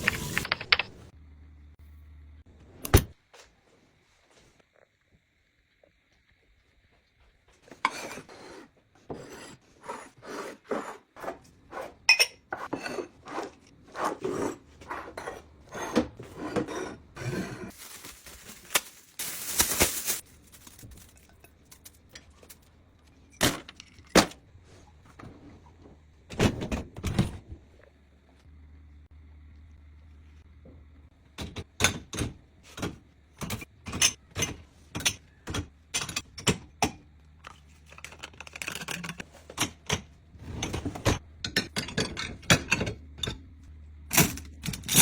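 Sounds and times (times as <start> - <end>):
household items clinking: 16.8 - 22.6.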